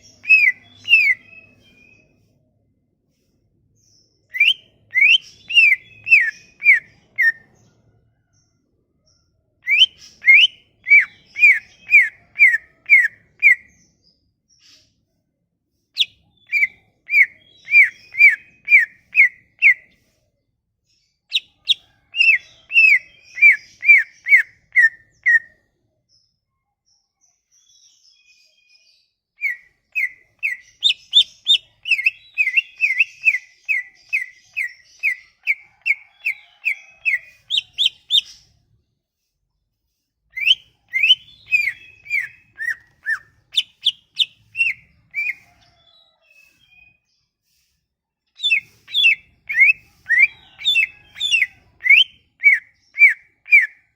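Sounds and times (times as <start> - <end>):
songbird whistling downward notes: 0.0 - 2.2, 4.3 - 7.4, 9.6 - 13.7, 16.0 - 19.8, 29.4 - 38.4, 40.4 - 47.1, 48.4 - 53.8.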